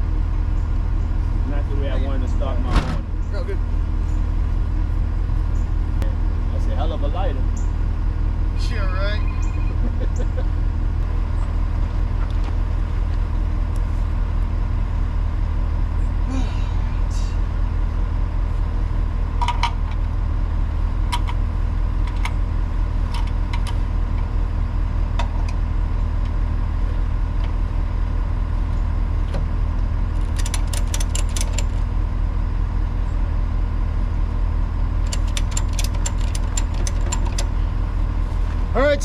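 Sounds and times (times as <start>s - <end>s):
vehicle engine idling: 0.0s - 39.0s
metallic clicking and jingling: 30.2s - 31.8s, 35.0s - 37.5s.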